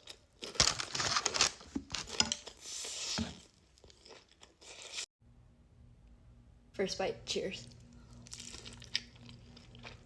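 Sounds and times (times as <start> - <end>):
food packaging crinkling: 0.0 - 3.1.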